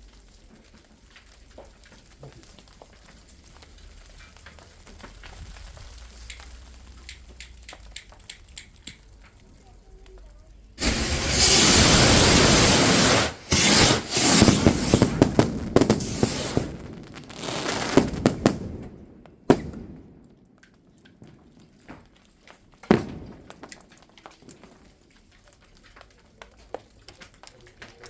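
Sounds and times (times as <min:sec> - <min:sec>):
firework crackling pops: 0:00.0 - 0:28.0
firework hissing rush: 0:10.8 - 0:18.7
firework bangs: 0:10.8 - 0:20.4, 0:22.8 - 0:23.8.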